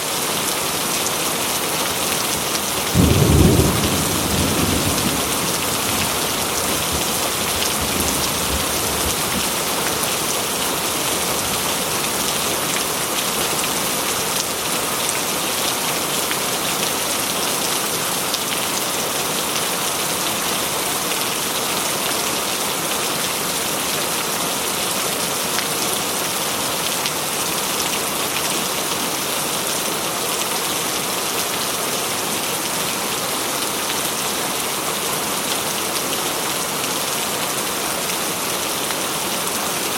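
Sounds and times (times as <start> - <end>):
heavy rain on a metal roof: 0.0 - 39.9
thunder rumble: 3.0 - 9.5.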